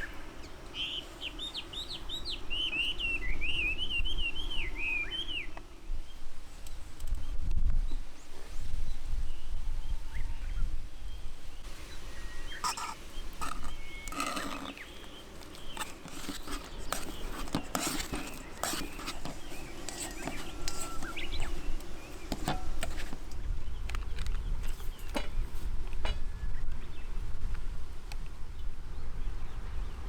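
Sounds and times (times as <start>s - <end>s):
wind buffeting microphone: 15.6s - 30.0s.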